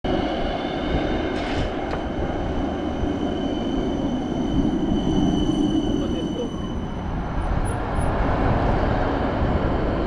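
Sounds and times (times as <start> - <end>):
tram rumbling on rails: 0.0 - 10.0.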